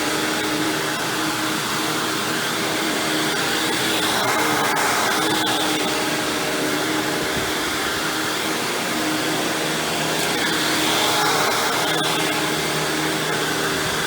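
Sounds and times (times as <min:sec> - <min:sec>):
vacuum cleaner motor whine: 0:00.0 - 0:14.0.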